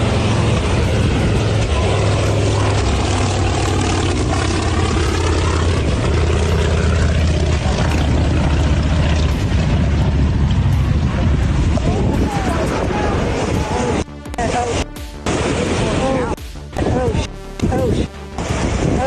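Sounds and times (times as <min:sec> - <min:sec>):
propeller plane engine droning: 0:00.0 - 0:19.0.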